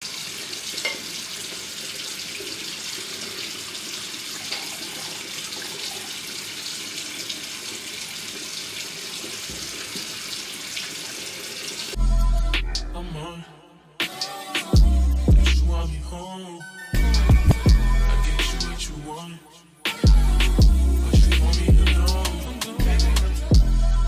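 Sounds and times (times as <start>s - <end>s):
water running: 0.0s - 12.0s.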